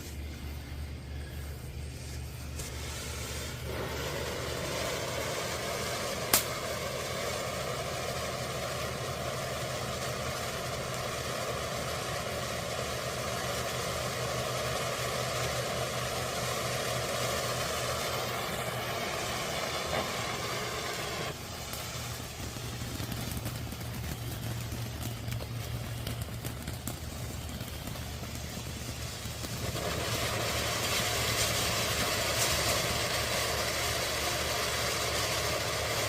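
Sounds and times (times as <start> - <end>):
firework fountain hissing: 0.0 - 36.0
sharp pop: 6.3 - 6.6.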